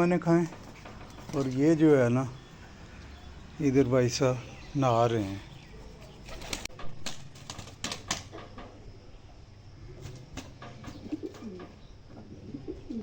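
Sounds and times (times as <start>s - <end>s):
pigeons cooing: 4.4s - 6.7s, 9.8s - 13.0s
pigeon wing flutters: 6.2s - 8.4s.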